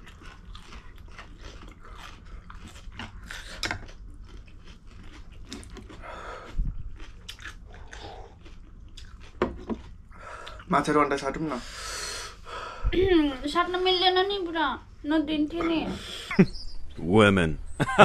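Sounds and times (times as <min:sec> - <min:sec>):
chewing and slurping noodles: 0:00.0 - 0:10.7.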